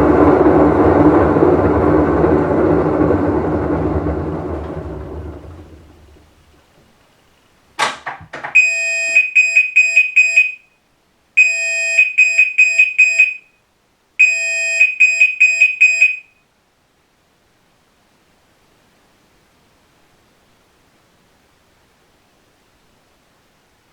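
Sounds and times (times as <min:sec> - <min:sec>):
washing machine spin rumble: 0:00.0 - 0:07.1
held electronic tone: 0:08.6 - 0:10.7, 0:11.4 - 0:13.5, 0:14.2 - 0:16.3
short electronic beeps: 0:08.6 - 0:10.8, 0:11.4 - 0:13.6, 0:14.2 - 0:16.4.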